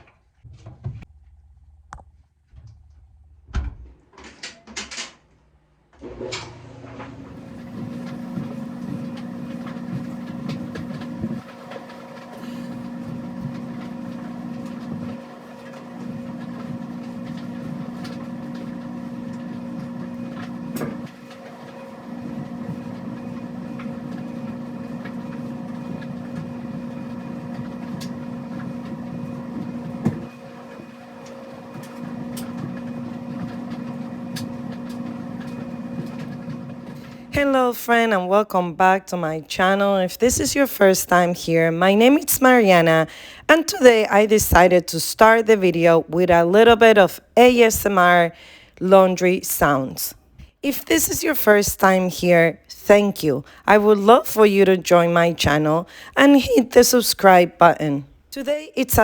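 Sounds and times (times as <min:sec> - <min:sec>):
laundry machine humming: 0:05.9 - 0:59.0.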